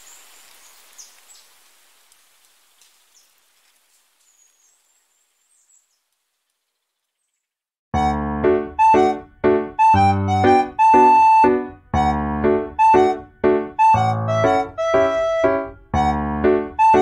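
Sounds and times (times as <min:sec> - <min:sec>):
soft outdoor hiss: 0:00.0 - 0:07.6
small birds chirping: 0:00.0 - 0:07.7.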